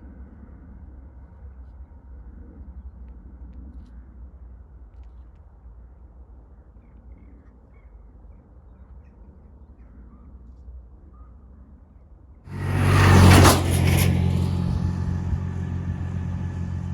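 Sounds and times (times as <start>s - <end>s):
vehicle passing close: 12.5s - 16.9s.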